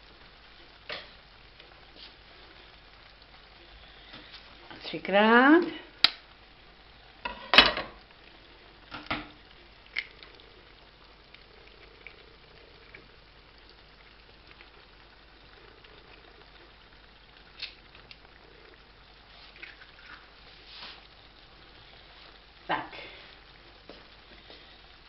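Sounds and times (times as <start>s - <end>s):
food sizzling in a pan: 0.0s - 25.0s
egg cracking knocks and clicks: 6.0s - 6.3s, 8.8s - 10.6s, 17.5s - 18.3s.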